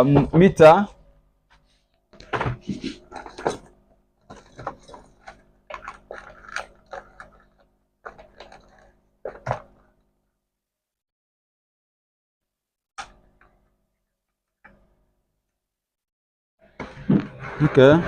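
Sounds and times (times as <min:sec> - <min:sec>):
hands handling plastic parts and tools: 0:04.3 - 0:09.8.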